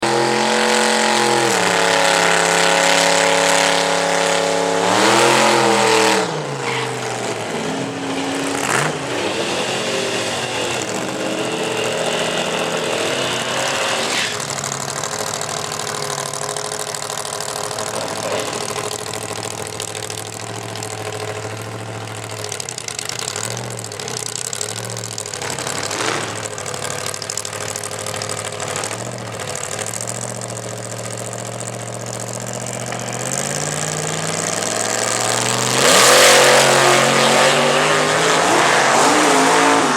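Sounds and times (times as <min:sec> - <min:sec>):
engine revving high: 0:00.0 - 0:14.6, 0:33.3 - 0:39.9
engine idling unevenly: 0:00.0 - 0:39.9.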